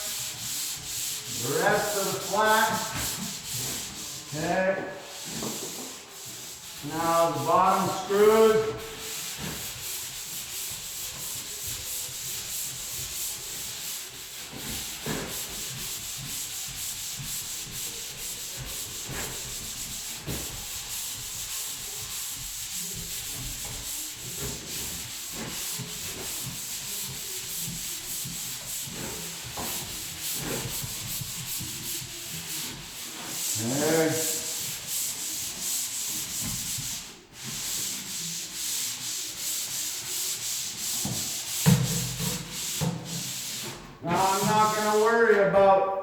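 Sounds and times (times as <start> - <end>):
sanding wall by hand: 0.0 - 45.8.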